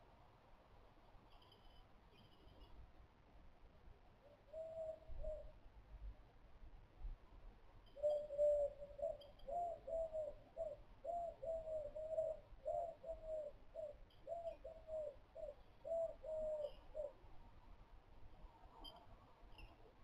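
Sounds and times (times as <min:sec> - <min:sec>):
faint small bird chirps: 0:01.2 - 0:02.8, 0:07.8 - 0:17.2, 0:18.4 - 0:20.0.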